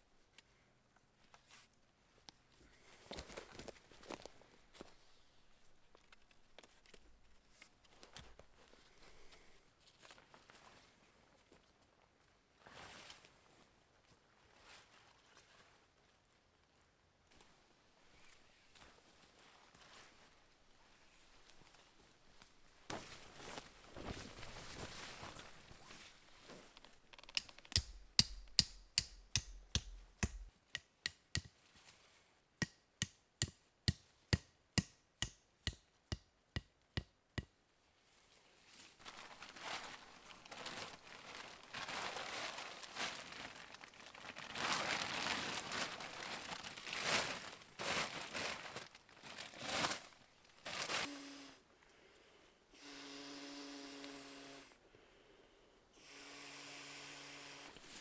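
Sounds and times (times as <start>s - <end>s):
tarp fabric crinkling and rustling: 22.6s - 27.2s, 38.7s - 51.1s
sharp knocks: 27.6s - 31.5s.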